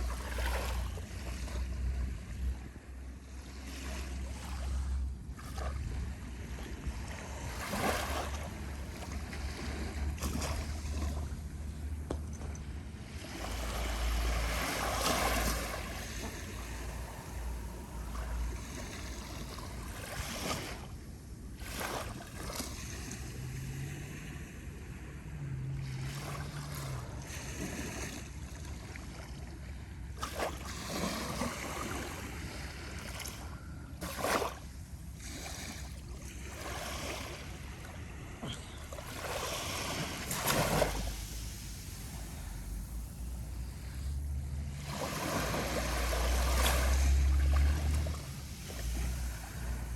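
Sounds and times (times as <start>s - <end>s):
gentle waves lapping on beach: 0.0s - 49.9s
sharp water splashes: 38.8s - 49.9s.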